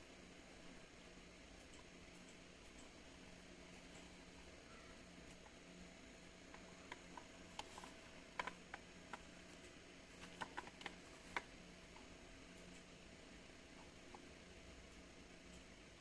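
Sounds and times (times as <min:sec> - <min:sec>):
faint steady hiss and hum: 0:00.0 - 0:16.0
light clicks and taps: 0:06.5 - 0:12.9.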